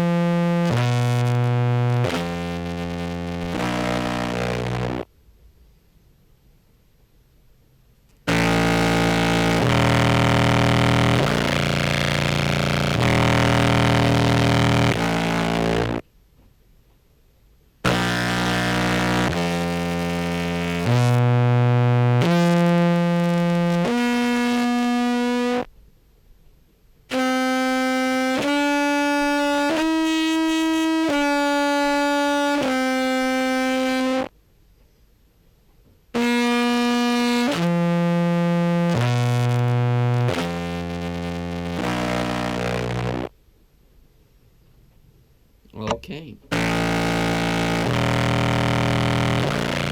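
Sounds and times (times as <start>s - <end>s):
amplified contrabass clarinet notes: 0.0s - 5.0s, 8.3s - 16.0s, 17.9s - 25.7s, 36.2s - 43.3s, 46.5s - 49.9s.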